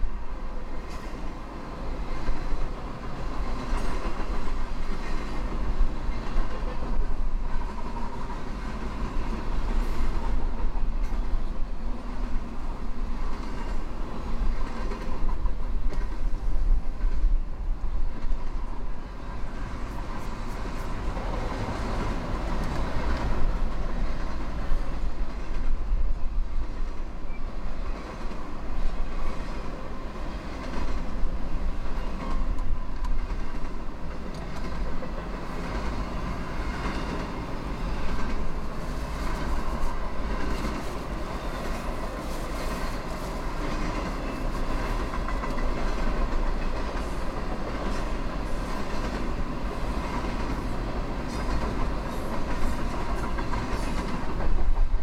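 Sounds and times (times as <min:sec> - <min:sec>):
wheels clacking over rail joints: 0:27.8 - 0:55.0.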